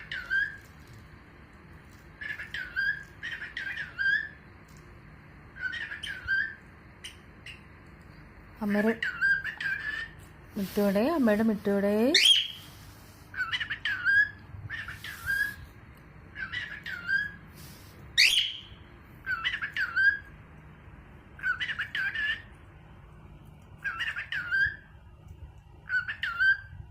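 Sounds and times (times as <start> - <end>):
cockatiel whistling calls: 0.0 - 0.7, 2.2 - 4.4, 5.6 - 7.7, 12.2 - 12.7, 13.3 - 15.6, 16.4 - 20.3, 23.8 - 24.9, 25.9 - 26.8.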